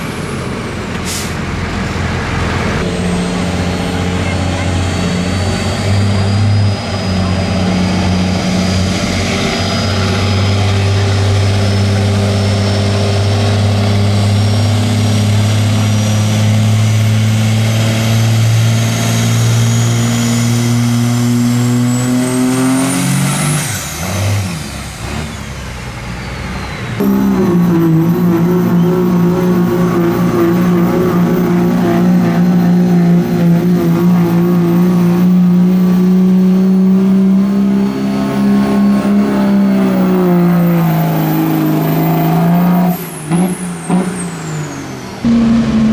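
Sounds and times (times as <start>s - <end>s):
loud steady engine: 0.0s - 45.9s
truck engine under heavy load: 0.0s - 45.9s
high-pitched whine: 26.6s - 45.9s.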